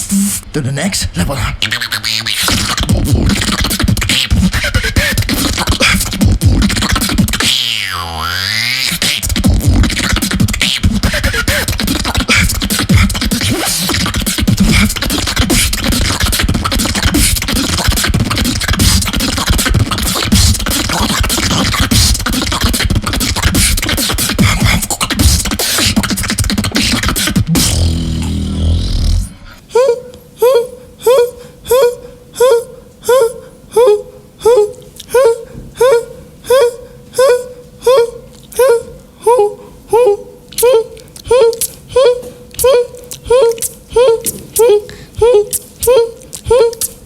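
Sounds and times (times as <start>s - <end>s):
beatboxing drum hits: 1.6s - 7.8s, 8.6s - 29.4s, 43.4s - 47.0s
swooping pitch sweep: 7.4s - 9.3s
low buzzing bass: 27.4s - 29.5s.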